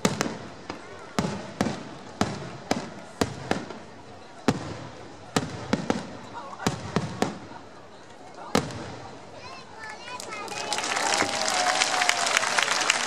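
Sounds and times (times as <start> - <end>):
fireworks bursting with bangs: 0.0 - 7.7, 8.5 - 9.2.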